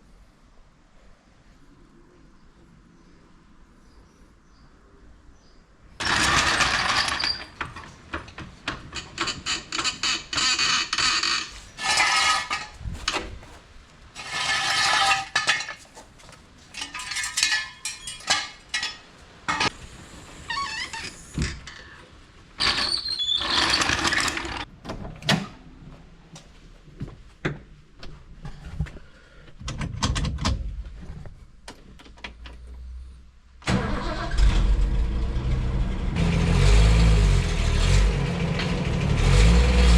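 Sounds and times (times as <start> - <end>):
mechanical squeaking and clatter: 6.0 - 13.1, 22.6 - 24.7.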